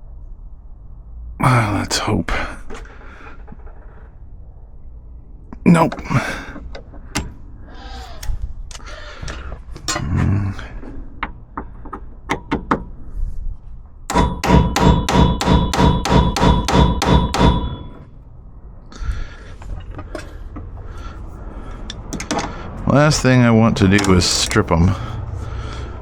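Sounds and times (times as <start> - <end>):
tools clicking and knocking: 5.9 - 7.4, 11.2 - 13.0, 14.1 - 18.1, 19.6 - 20.9, 21.8 - 22.8, 23.8 - 24.7
hammer blows on metal: 14.1 - 18.1.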